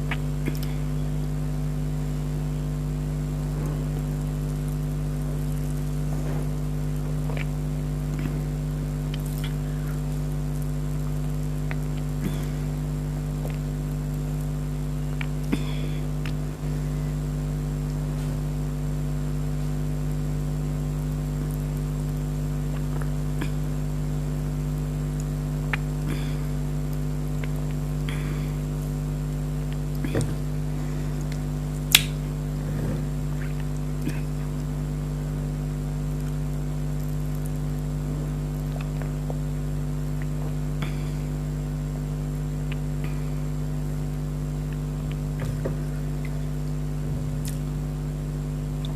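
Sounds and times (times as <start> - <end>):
person sipping and swallowing: 0.0 - 1.0, 5.4 - 13.7, 22.6 - 24.0, 25.6 - 34.8, 44.7 - 47.8
steady low hum: 0.0 - 48.9.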